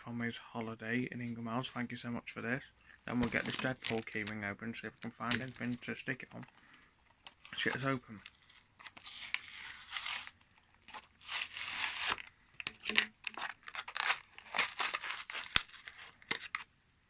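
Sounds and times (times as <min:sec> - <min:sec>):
packaging tearing and crinkling: 0:03.1 - 0:04.4, 0:05.0 - 0:05.8, 0:07.3 - 0:16.7.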